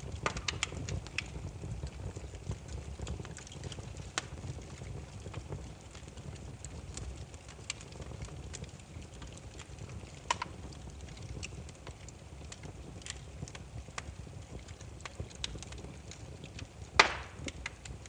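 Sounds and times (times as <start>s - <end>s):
firewood crackling and popping: 0.0s - 18.0s.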